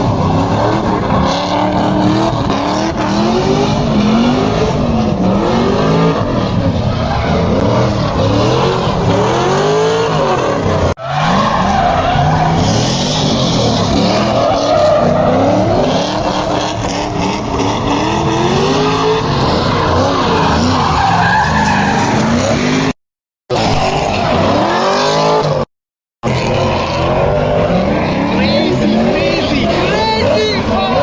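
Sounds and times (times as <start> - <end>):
car engines revving: 0.0 - 31.0.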